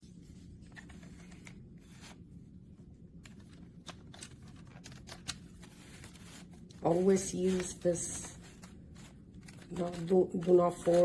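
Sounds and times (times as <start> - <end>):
low steady hum: 0.0 - 11.0
object handling clicks and rustles: 3.2 - 11.0.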